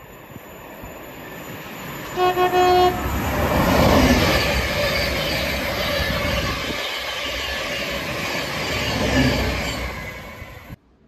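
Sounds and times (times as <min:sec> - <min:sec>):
train passing at speed: 0:00.0 - 0:11.0
train horn toot: 0:02.1 - 0:03.1.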